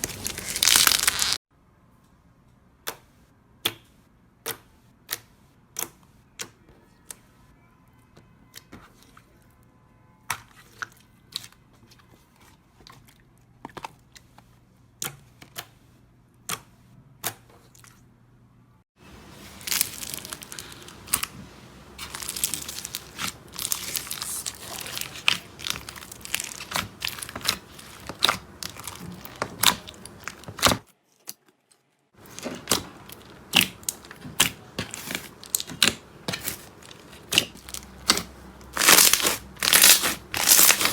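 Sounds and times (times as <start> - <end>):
slime crackling and popping: 0.0 - 1.4, 19.3 - 31.4, 32.2 - 40.9
slime clicking and popping: 32.3 - 40.9.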